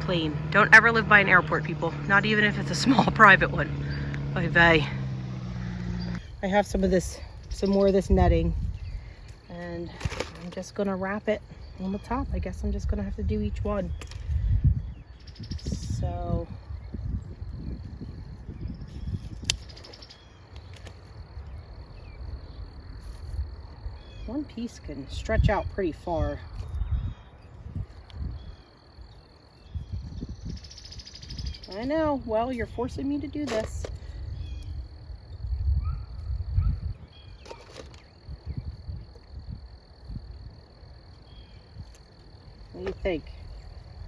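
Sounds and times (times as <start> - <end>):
insect trill: 0.0 - 44.0.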